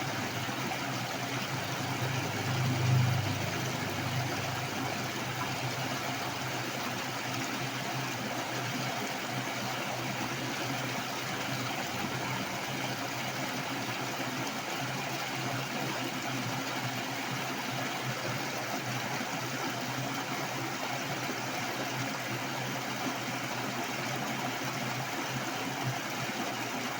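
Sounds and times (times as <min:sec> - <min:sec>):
heavy rushing water: 0:00.0 - 0:21.3.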